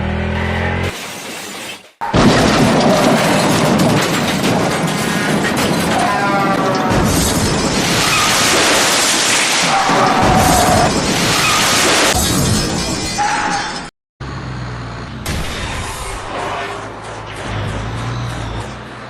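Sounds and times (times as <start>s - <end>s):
dense crashing rumble: 2.2s - 8.5s.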